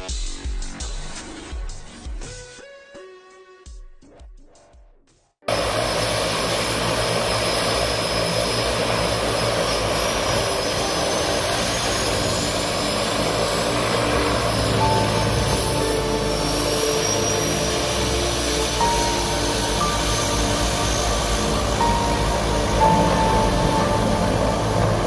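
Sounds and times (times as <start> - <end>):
music: 0.0 - 25.0
loud engine-like drone: 5.5 - 25.0.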